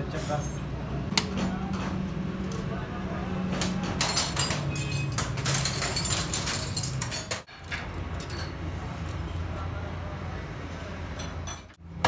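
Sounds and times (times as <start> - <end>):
clinking metal parts and tools: 3.6 - 8.6, 11.2 - 11.8.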